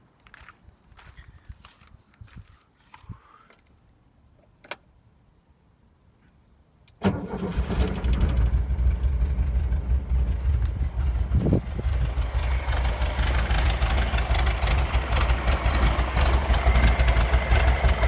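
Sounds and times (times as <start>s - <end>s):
car engine starting and running: 7.0s - 18.0s.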